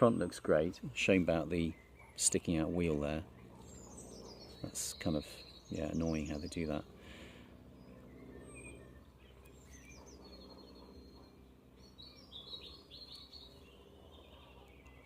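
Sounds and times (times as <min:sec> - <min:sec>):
bird chirps: 0:00.8 - 0:15.0.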